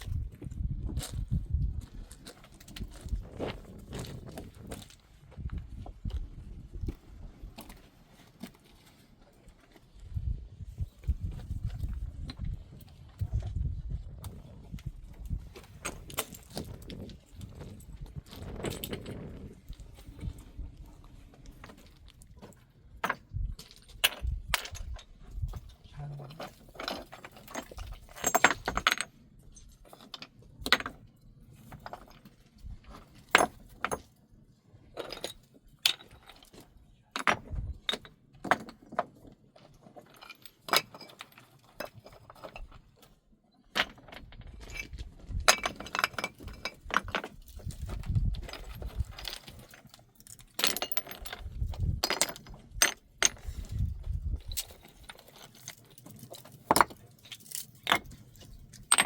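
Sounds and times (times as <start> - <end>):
hard objects clinking and knocking: 26.3 - 31.0, 43.7 - 59.0.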